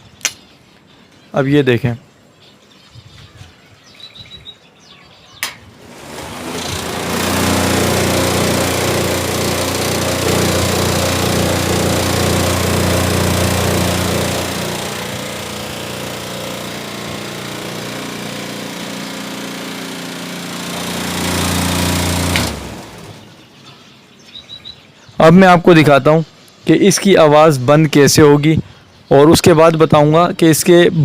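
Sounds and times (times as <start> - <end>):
cooler fan buzzing rattle: 5.4 - 23.6.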